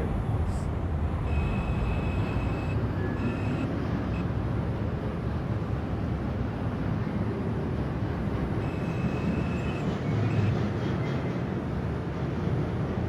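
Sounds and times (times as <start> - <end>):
subway wheels rumbling: 0.0 - 13.0
thin high steady tone: 1.2 - 4.2.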